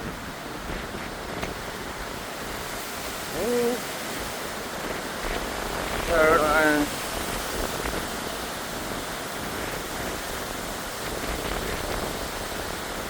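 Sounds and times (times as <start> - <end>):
rushing wind and rain: 0.0 - 13.0
wind buffeting microphone: 0.0 - 13.0.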